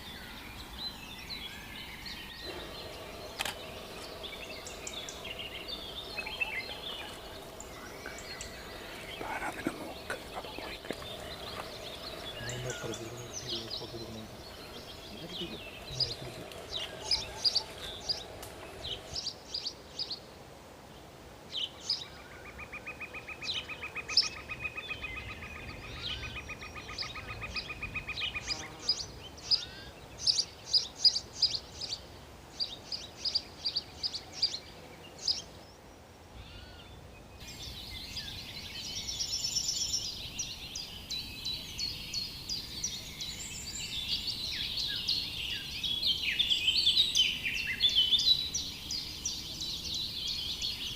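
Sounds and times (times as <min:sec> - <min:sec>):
bird chirps: 0:00.0 - 0:20.2, 0:36.4 - 0:50.9
overlapping bird twittering: 0:01.2 - 0:19.7
buzzy bird trill: 0:02.2 - 0:19.2.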